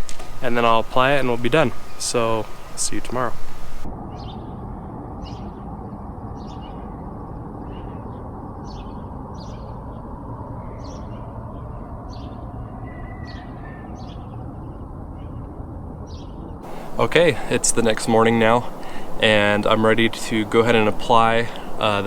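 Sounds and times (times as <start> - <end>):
birds chirping: 0.0 - 4.5, 16.1 - 22.0
low background noise: 0.0 - 8.6, 16.6 - 22.0.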